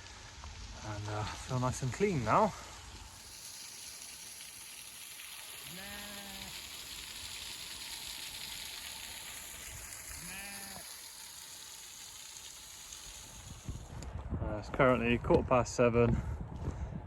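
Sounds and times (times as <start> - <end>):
mountain stream hiss: 0.0 - 13.9
sheep bleating: 5.6 - 6.6, 10.2 - 11.0.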